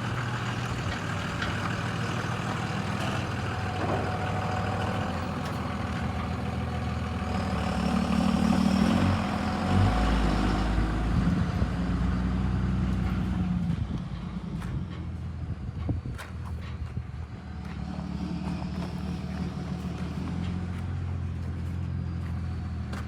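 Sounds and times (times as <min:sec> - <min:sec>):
large truck engine running: 0:00.0 - 0:23.0.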